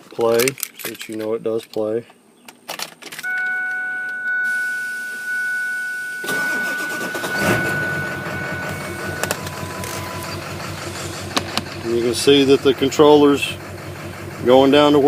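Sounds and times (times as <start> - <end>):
dashboard warning chime: 3.2 - 13.1
engine idling: 3.4 - 15.0
engine cranking and starting: 6.2 - 15.0.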